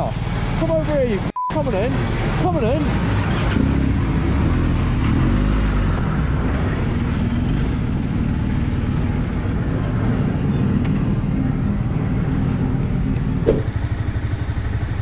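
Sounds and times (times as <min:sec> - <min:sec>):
road traffic noise: 0:00.0 - 0:15.0
vehicle engine running: 0:11.7 - 0:15.0.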